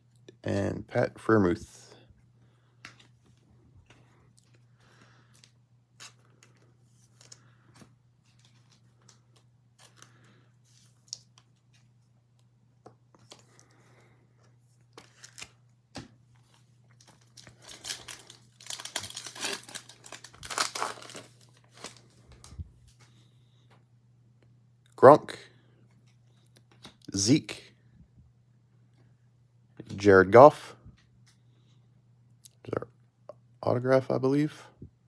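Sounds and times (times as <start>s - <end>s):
card pack wrapper tearing: 15.0s - 15.6s, 17.0s - 22.1s.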